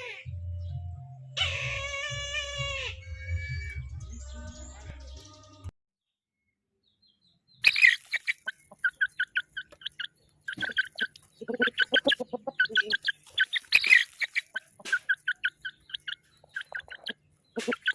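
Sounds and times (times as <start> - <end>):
chickens clucking: 7.6 - 17.9.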